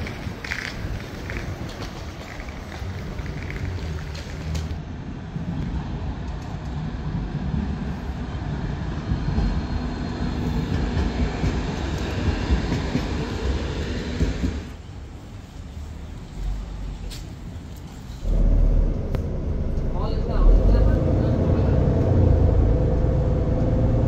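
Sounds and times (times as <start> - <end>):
wheel clatter: 0.0 - 4.7
train rumbling on rails: 0.0 - 24.0.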